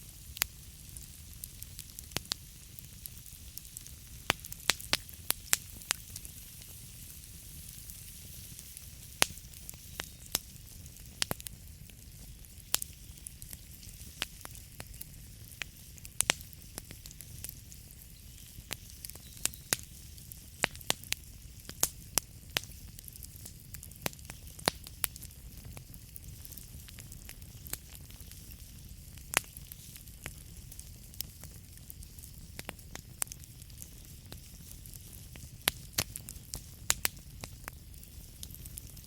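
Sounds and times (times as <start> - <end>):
flames rumbling and hissing: 0.0 - 39.0
logs crackling and popping: 0.0 - 39.0.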